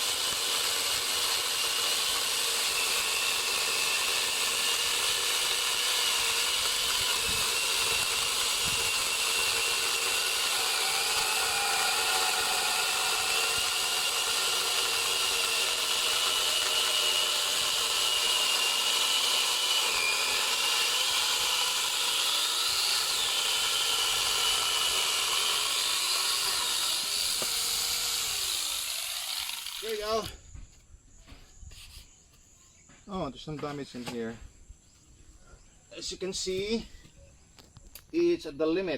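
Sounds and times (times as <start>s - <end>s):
chainsaw attachment cutting wood: 0.0s - 30.4s.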